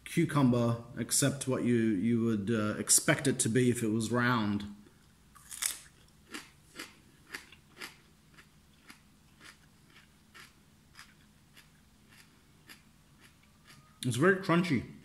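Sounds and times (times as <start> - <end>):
crunchy cucumber chewing: 5.3 - 13.9.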